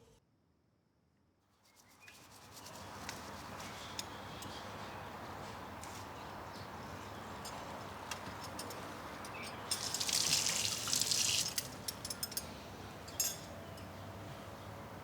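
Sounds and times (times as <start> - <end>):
water dripping: 9.7 - 11.9
water splashing: 9.8 - 11.6.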